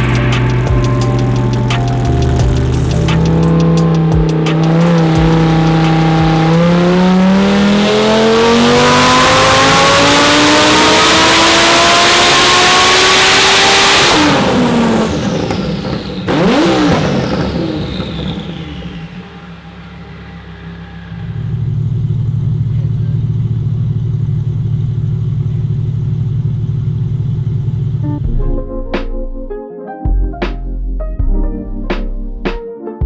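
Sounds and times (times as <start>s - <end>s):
exhaust pop: 0.0s - 10.3s, 12.3s - 19.4s
sports car engine revving: 0.0s - 28.2s.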